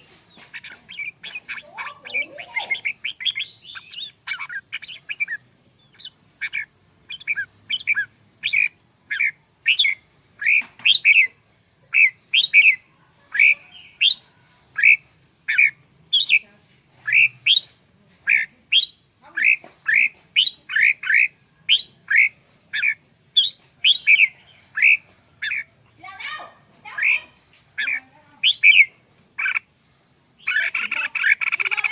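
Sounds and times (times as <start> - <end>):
bulbul calling in sharp notes: 0.3 - 29.7, 30.4 - 31.9.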